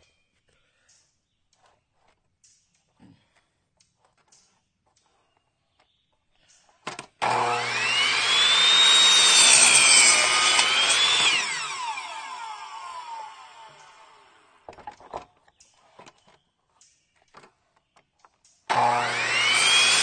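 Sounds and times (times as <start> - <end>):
electric saw cutting board: 7.2 - 14.8, 18.7 - 20.0.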